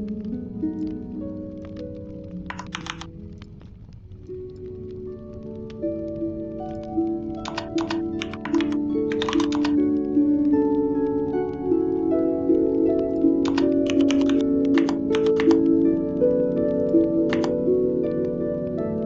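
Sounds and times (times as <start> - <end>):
calm background music: 0.0 - 19.0
keyboard typing: 2.4 - 3.1, 7.4 - 9.8, 13.4 - 15.7, 17.3 - 17.6.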